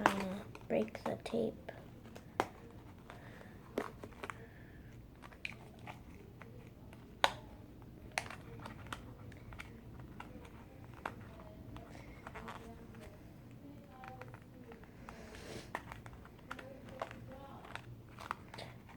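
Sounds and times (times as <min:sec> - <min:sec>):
tape and cardboard clicks: 0:05.2 - 0:07.5
packaging crinkling: 0:15.7 - 0:18.9.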